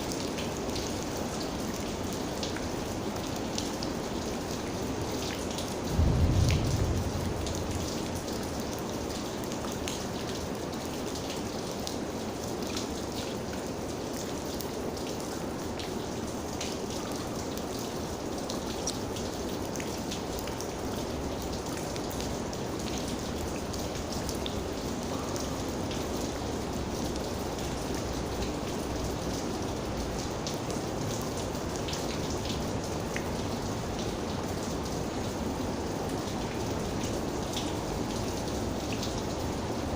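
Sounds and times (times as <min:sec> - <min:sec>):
steady rain: 0:00.0 - 0:39.9
low rumble: 0:05.9 - 0:08.4.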